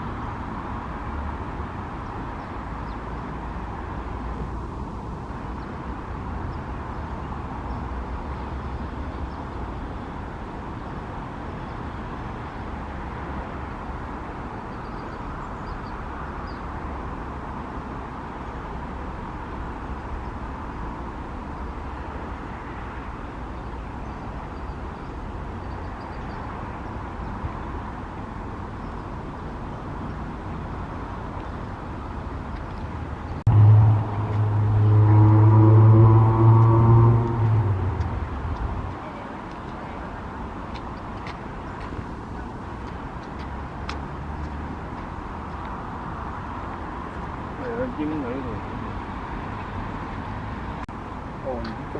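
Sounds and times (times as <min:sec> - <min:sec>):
distant road traffic: 0:00.0 - 0:51.9
loud low hum: 0:33.5 - 0:38.9.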